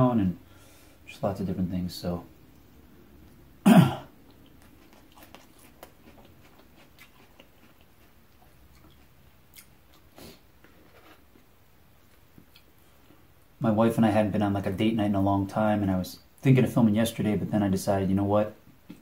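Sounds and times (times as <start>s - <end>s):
chewing food: 4.2s - 13.2s.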